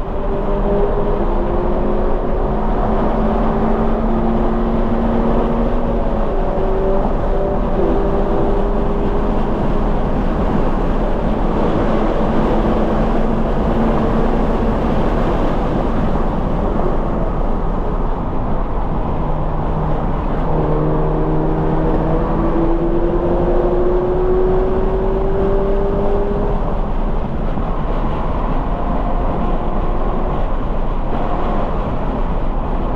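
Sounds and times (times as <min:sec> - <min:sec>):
car engine accelerating: 0:00.0 - 0:32.8
road and wind noise: 0:00.0 - 0:32.9.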